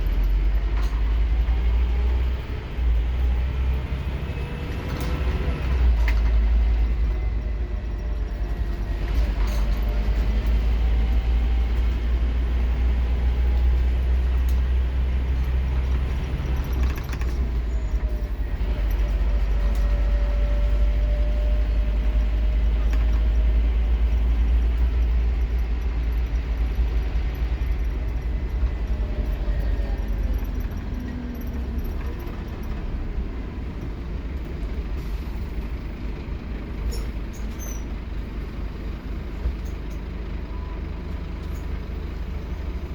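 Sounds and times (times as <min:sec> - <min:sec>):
bus diesel engine accelerating: 0:00.0 - 0:42.9.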